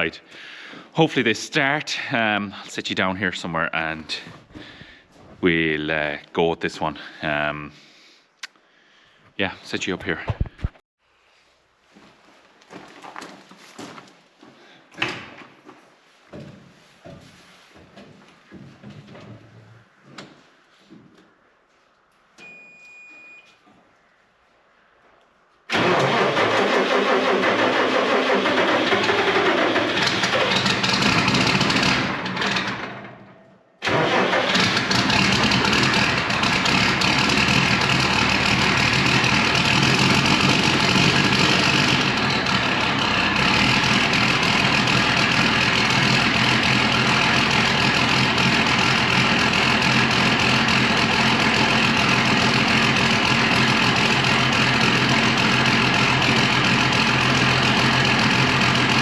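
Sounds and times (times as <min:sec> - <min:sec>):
diesel engine idling: 0:25.7 - 0:33.0, 0:33.8 - 0:59.0
diesel tractor engine starting: 0:25.7 - 0:59.0.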